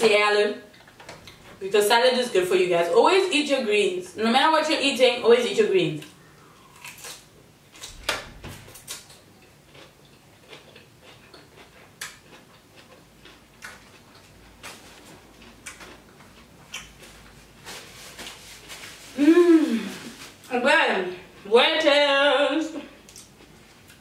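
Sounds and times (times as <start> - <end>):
chewing lettuce crunches: 6.6 - 8.0, 8.7 - 19.0.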